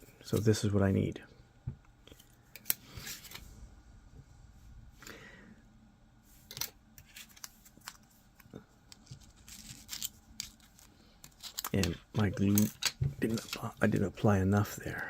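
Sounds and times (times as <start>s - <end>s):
plastic parts clicking: 8.9s - 13.8s.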